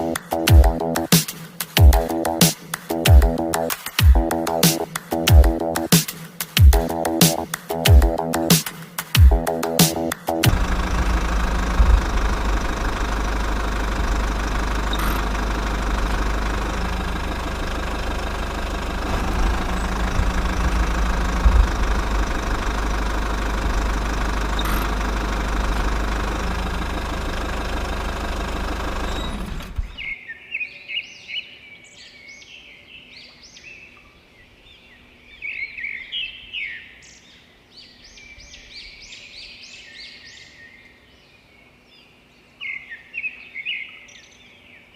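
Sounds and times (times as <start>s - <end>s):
birds chirping: 0.0s - 25.9s
small motor running: 10.4s - 30.1s.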